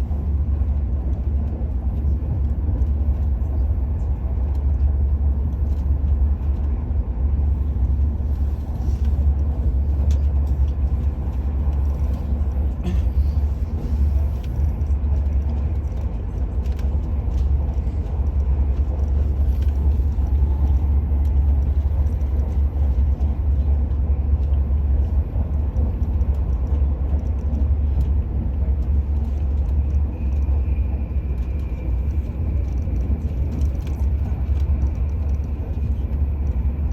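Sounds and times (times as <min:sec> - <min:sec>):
train cabin rumble: 0:00.0 - 0:36.9.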